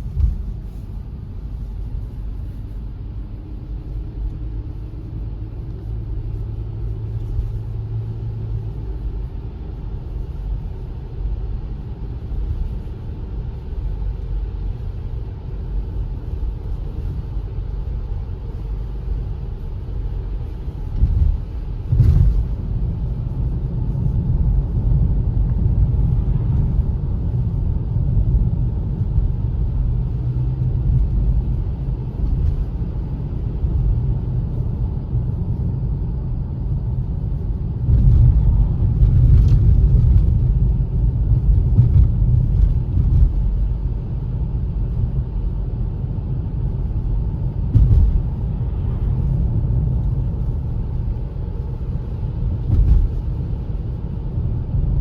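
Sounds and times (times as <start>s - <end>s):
car engine rumble: 0.0s - 55.0s
road noise: 0.0s - 55.0s
brief thump: 47.7s - 48.3s.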